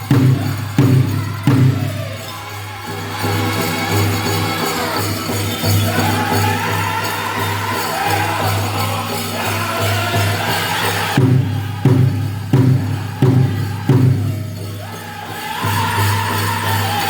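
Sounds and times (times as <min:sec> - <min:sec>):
big drum beating: 0:00.0 - 0:02.1, 0:10.2 - 0:15.0
bells jingling: 0:00.0 - 0:17.0
drum group singing: 0:00.0 - 0:17.0.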